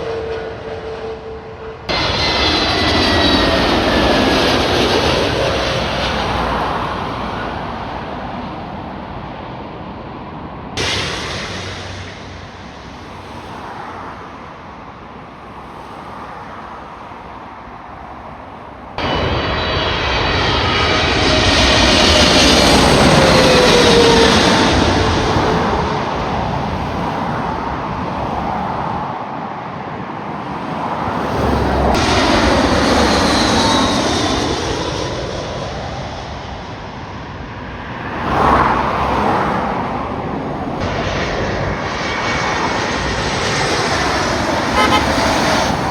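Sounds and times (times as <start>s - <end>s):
jet airliners passing overhead: 0.0s - 45.9s.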